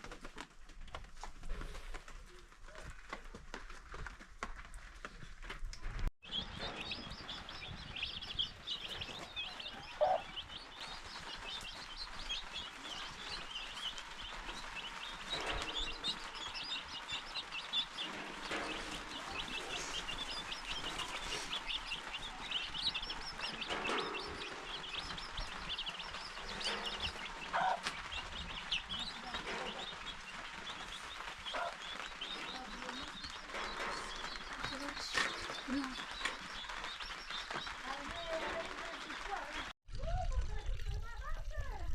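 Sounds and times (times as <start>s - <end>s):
birds chirping: 6.2s - 39.7s.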